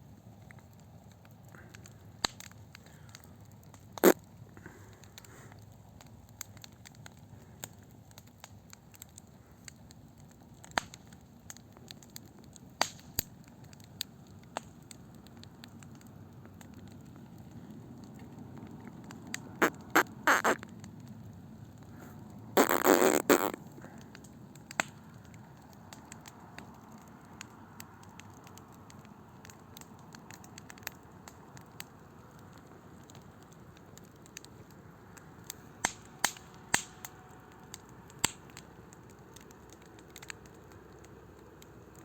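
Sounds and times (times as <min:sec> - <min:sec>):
campfire crackling and popping: 0:00.0 - 0:42.0.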